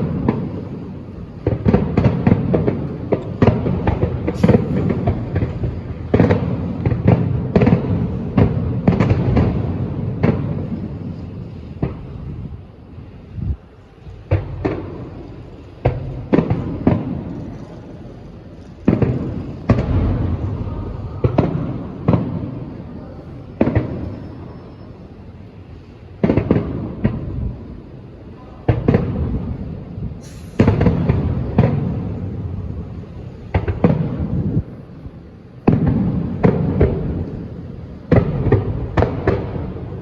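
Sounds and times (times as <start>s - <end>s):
deep rumble after bangs: 0.0s - 24.3s
fireworks bursting with bangs: 0.0s - 40.0s.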